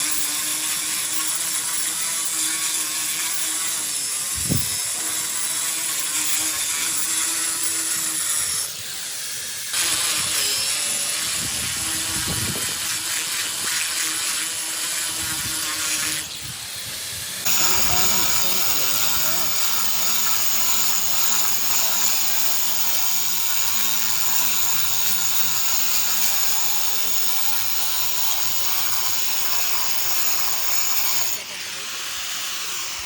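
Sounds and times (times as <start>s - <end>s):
machine hissing: 15.5s - 33.0s.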